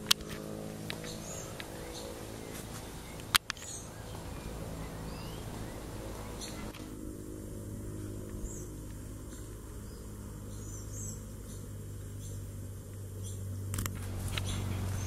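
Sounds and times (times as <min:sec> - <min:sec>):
steady low hum: 0:00.0 - 0:15.0
high bird chirps: 0:03.1 - 0:06.8.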